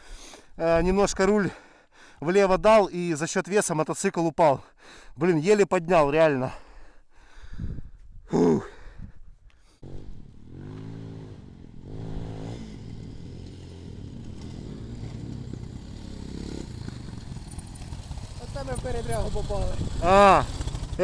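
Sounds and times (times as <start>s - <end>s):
person exhaling heavily: 6.7s - 9.9s
motorcycle engine revving: 9.8s - 21.0s.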